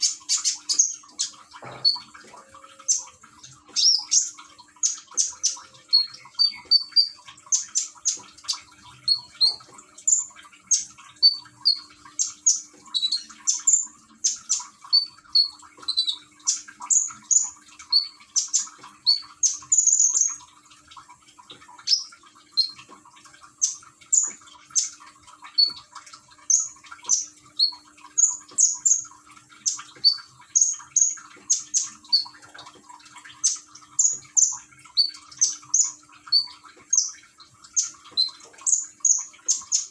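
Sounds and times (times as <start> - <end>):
songbird chirping: 0.0 - 20.4
water trickling: 0.0 - 39.9.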